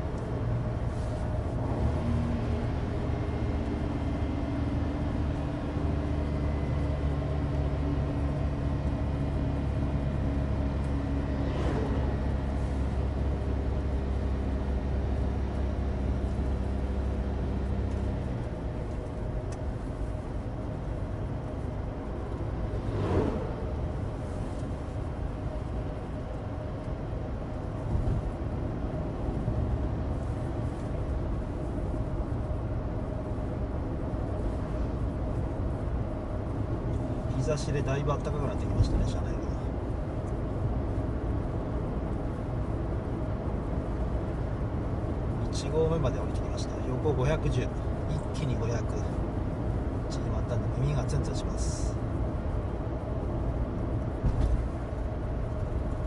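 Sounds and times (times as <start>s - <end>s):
tyre and road noise: 0.0s - 56.0s
vehicles whooshing past: 11.2s - 13.4s, 22.3s - 25.0s.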